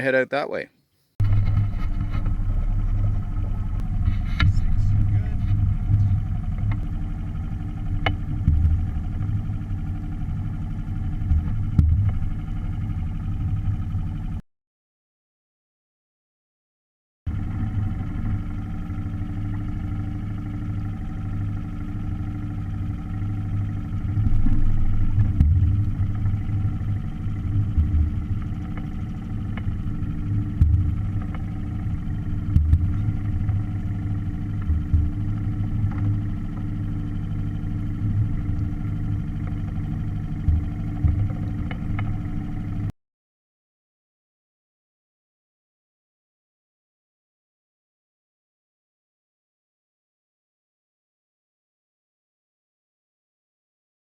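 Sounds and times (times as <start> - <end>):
low buffeting: 0.0 - 12.8, 22.9 - 42.9
outboard motor running: 1.2 - 14.4, 17.3 - 42.9.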